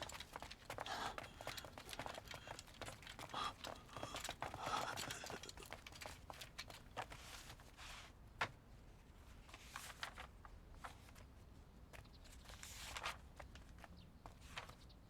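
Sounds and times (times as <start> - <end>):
faint footsteps: 0.0 - 6.9.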